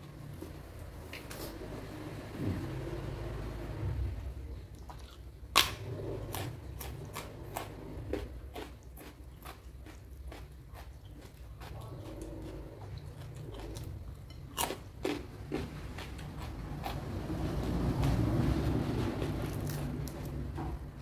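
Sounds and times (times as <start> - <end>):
chewing and crunching food: 4.6 - 21.0.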